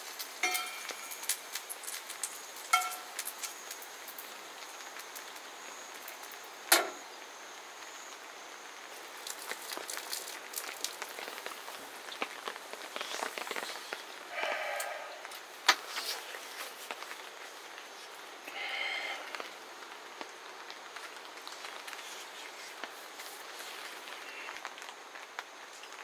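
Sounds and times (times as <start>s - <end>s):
rain pattering: 0.0s - 26.0s
drips ticking: 0.4s - 4.3s.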